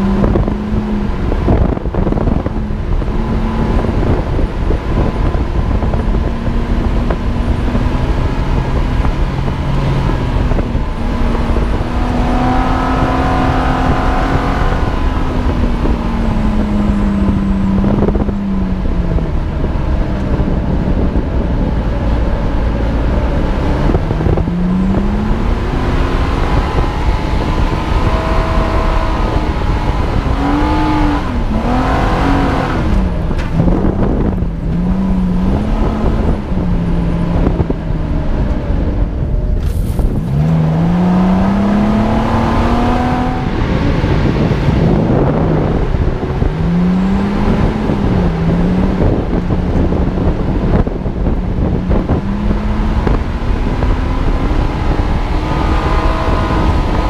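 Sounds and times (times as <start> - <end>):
engine revving: 0.0 - 57.0
wind rumble on microphone: 0.0 - 57.0.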